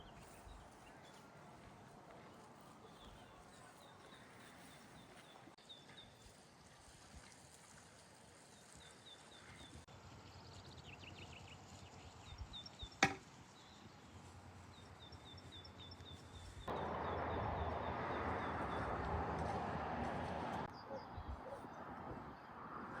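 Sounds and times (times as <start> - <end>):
small birds chirping: 8.5 - 19.5.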